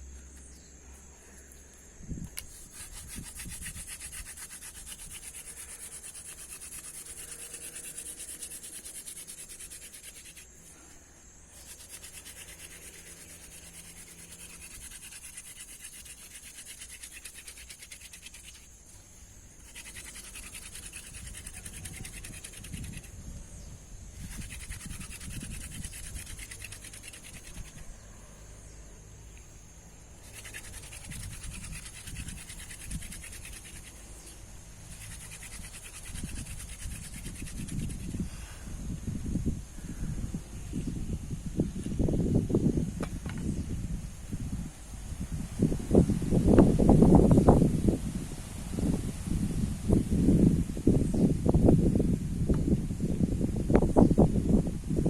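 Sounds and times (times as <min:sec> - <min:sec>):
rhythmic rubbing by hand: 0:02.4 - 0:10.5, 0:11.5 - 0:23.1, 0:24.2 - 0:27.9, 0:30.2 - 0:34.3, 0:34.9 - 0:38.2.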